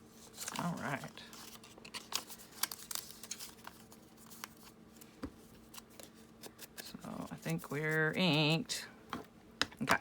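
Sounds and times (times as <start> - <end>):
paper rustling: 0.2 - 7.7.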